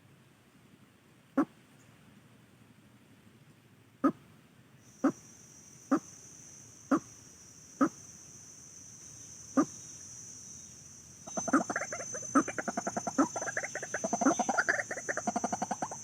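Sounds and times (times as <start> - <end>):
fowl calling excitedly: 11.3 - 16.0.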